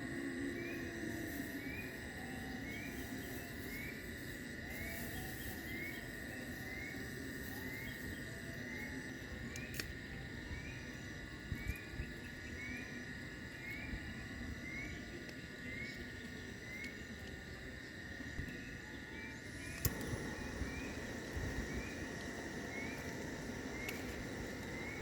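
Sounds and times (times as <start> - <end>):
insects high-pitched drone: 0.0 - 25.0
rising insect chirp: 0.0 - 25.0
faint clicks: 9.5 - 9.9, 19.7 - 20.2.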